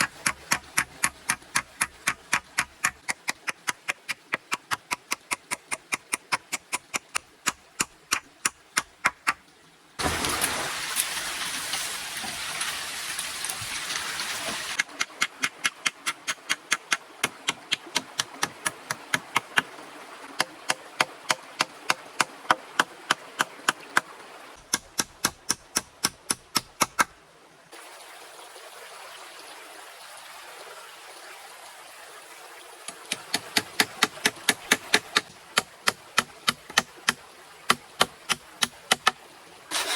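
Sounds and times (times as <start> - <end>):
rapid evenly spaced knocks: 0.0 - 9.4, 14.8 - 19.7
loud water-like rushing: 10.0 - 24.6.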